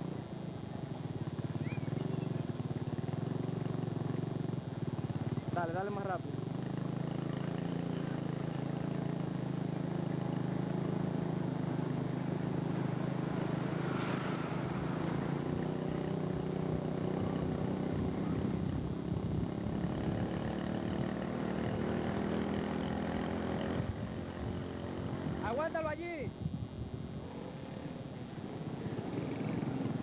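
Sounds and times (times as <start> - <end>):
car engine driving past: 12.7 - 16.8.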